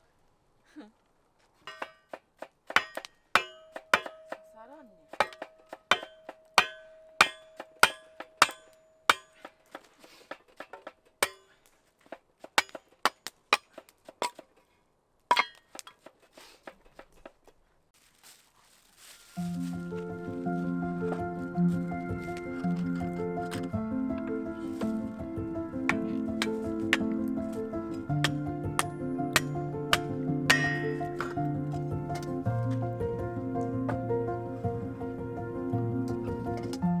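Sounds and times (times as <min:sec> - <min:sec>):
metal clinking when struck: 0:02.8 - 0:09.5, 0:11.2 - 0:11.6, 0:15.3 - 0:16.0, 0:25.9 - 0:31.6.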